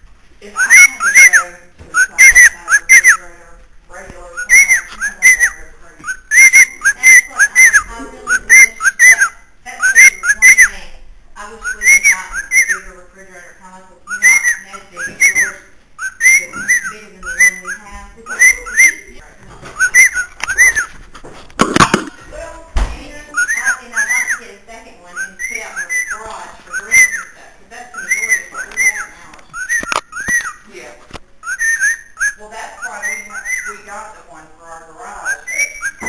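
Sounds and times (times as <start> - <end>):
bird whistling: 0.5 - 3.3, 4.3 - 10.8, 11.6 - 13.0, 14.0 - 20.9, 23.1 - 30.7, 31.4 - 34.0, 35.1 - 36.0.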